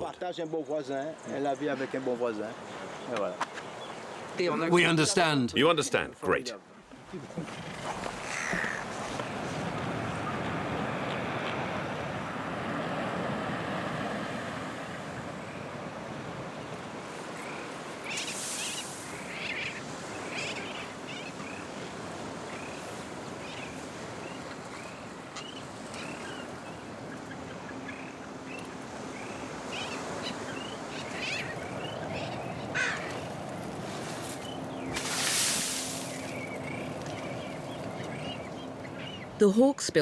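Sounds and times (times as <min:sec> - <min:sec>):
surf: 0:01.2 - 0:39.4
short bird calls: 0:08.2 - 0:08.9, 0:29.7 - 0:33.3.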